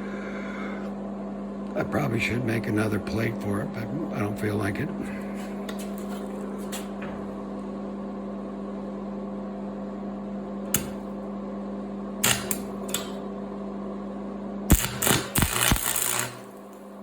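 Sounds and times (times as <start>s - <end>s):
welder transformer humming: 0.0s - 17.0s
sharp click: 12.2s - 13.2s.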